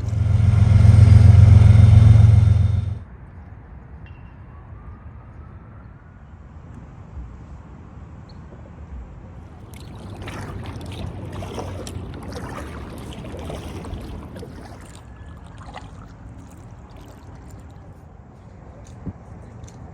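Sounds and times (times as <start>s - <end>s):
steady low rumble: 0.0s - 3.1s, 9.4s - 18.5s
kayak paddle splashing in water: 9.4s - 19.8s.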